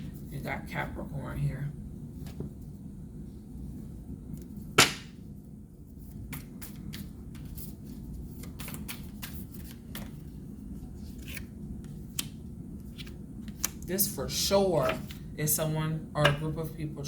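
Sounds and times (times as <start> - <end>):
cards being shuffled: 6.2 - 10.3, 10.9 - 13.8.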